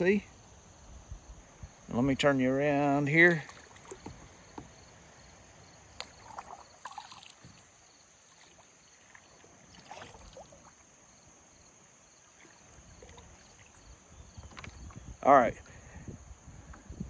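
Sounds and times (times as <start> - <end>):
steady high-pitched hiss: 0.0 - 17.0
water knocking against kayak hull: 3.3 - 5.0, 14.4 - 15.0.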